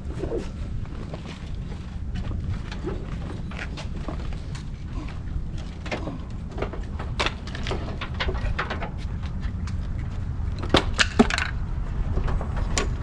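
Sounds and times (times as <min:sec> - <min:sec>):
steady low rumble: 0:00.0 - 0:13.0
hand tools clinking on metal: 0:02.7 - 0:09.4.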